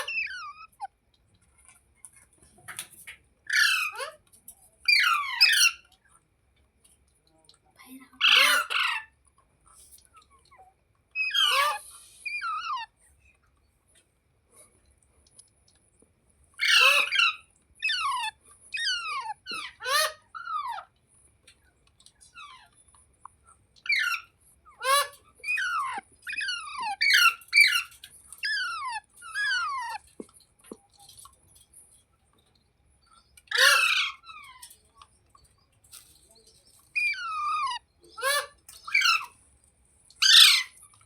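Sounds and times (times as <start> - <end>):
parrot screeches: 0.0 - 0.9, 3.5 - 4.2, 4.9 - 5.8, 8.2 - 9.1, 11.2 - 12.9, 16.6 - 20.9, 23.8 - 30.1, 33.5 - 34.8, 36.9 - 39.4, 40.2 - 40.8
parrot squawking: 0.0 - 0.9, 3.5 - 4.2, 4.9 - 5.9, 8.2 - 9.1, 11.2 - 12.9, 16.6 - 20.9, 23.8 - 30.2, 33.4 - 34.8, 36.9 - 39.4, 40.2 - 40.9.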